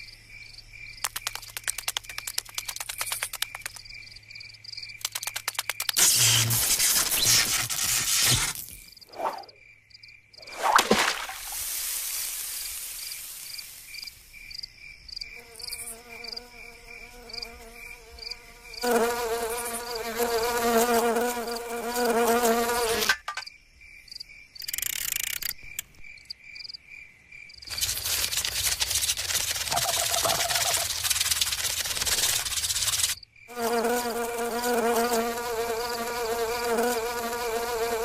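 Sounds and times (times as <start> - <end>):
wavering insect buzz: 4.6 - 9.7, 12.6 - 23.2, 27.6 - 38.0
broad hiss: 11.3 - 14.3.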